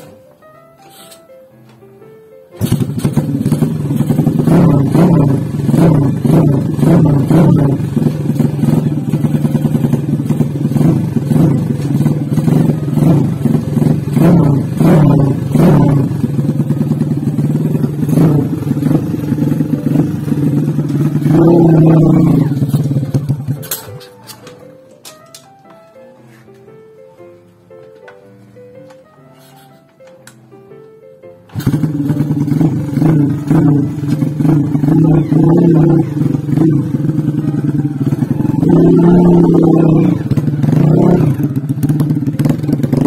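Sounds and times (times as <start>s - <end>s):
motorcycle engine revving: 2.6s - 23.8s, 31.5s - 43.0s.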